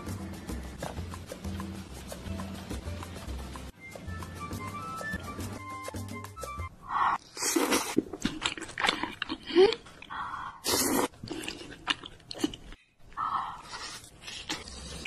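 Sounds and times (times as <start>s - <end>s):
person chewing: 7.2s - 12.8s.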